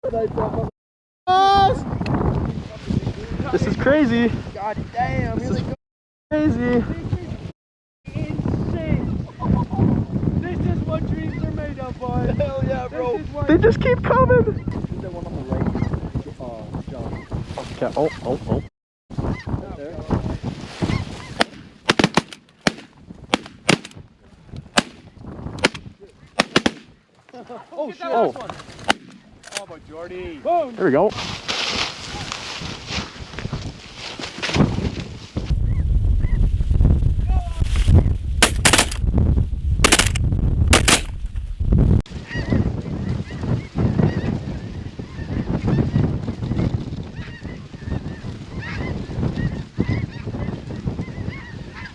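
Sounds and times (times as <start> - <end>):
wind rumble on microphone: 0.0 - 0.7, 1.3 - 7.5, 8.1 - 21.8, 24.0 - 26.2, 31.2 - 51.9
shotgun shots: 38.4 - 39.0, 39.9 - 40.2, 40.8 - 41.3.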